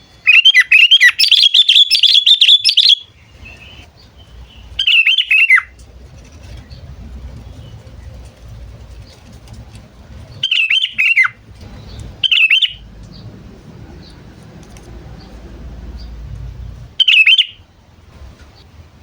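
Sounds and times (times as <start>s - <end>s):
bulbul chirping: 0.2s - 5.8s, 10.3s - 13.3s, 17.0s - 17.7s
faint low rumble: 3.0s - 19.0s.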